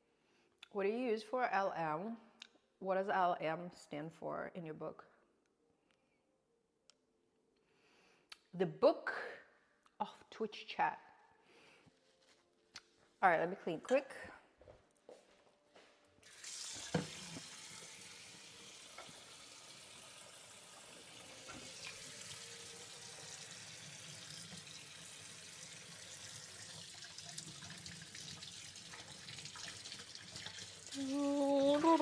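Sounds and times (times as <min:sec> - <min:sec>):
tap water running into sink: 0:16.2 - 0:32.0.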